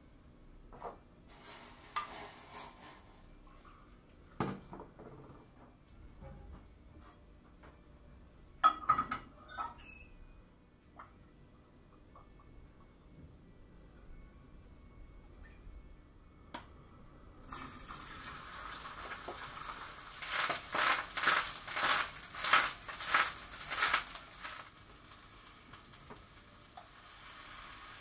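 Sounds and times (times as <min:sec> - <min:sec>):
food sizzling in frying pan: 0:17.5 - 0:28.0.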